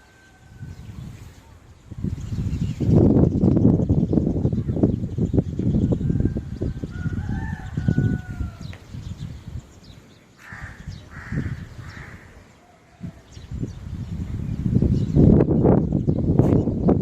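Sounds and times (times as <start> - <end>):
rooster crowing: 0.0 - 0.8, 6.1 - 8.7.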